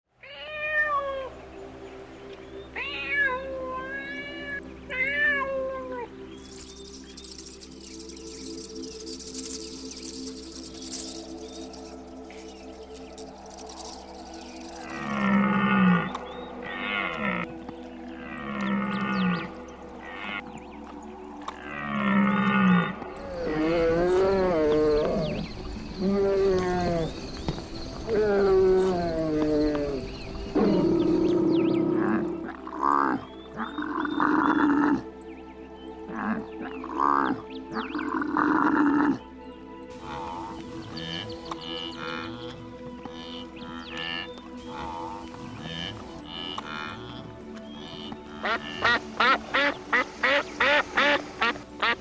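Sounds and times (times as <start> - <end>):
cat meowing: 0.2 - 1.3, 2.8 - 6.1
animal calling: 13.5 - 17.6, 21.6 - 35.0, 36.1 - 39.2, 39.9 - 52.0.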